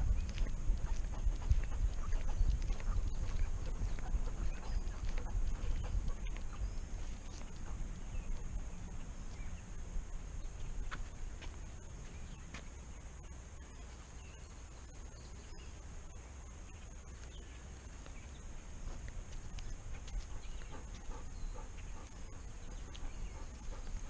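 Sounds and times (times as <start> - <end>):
low rumble: 0.0 - 13.8.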